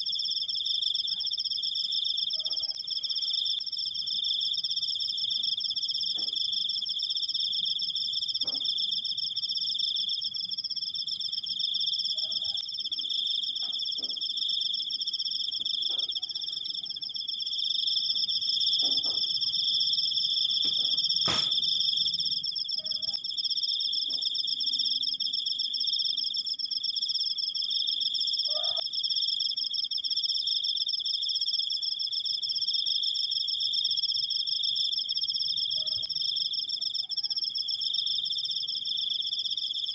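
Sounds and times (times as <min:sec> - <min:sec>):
cricket trilling: 0:00.0 - 0:39.9
faint animal calls: 0:28.4 - 0:28.8.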